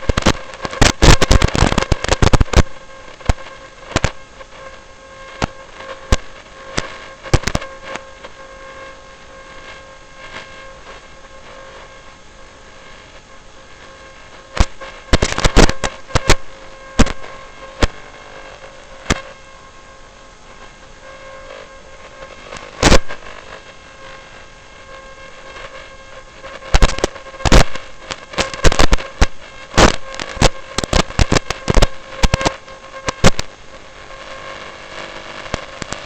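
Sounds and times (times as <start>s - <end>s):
steady electrical hum: 0.0s - 36.0s
loud sharp cracks: 14.6s - 18.0s, 26.7s - 33.6s.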